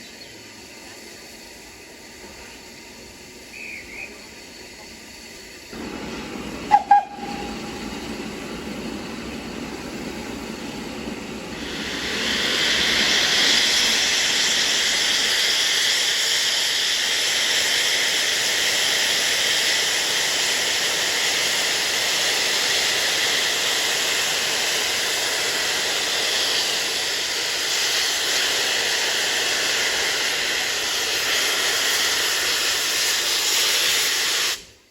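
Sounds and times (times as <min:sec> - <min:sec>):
steam hissing: 0:00.0 - 0:34.9
steam whistle blasts: 0:06.6 - 0:08.0.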